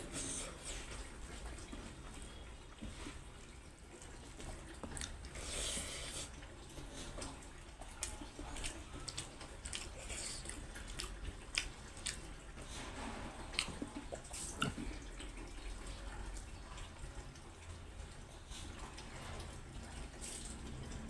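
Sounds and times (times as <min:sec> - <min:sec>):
chewing with lip smacks: 0:03.9 - 0:12.7, 0:13.5 - 0:15.6.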